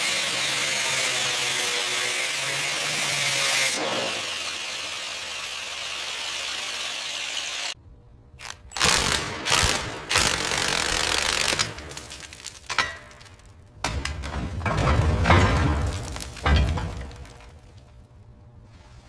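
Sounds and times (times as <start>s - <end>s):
workshop tool and metal mechanism: 0.0s - 7.8s, 8.4s - 15.4s.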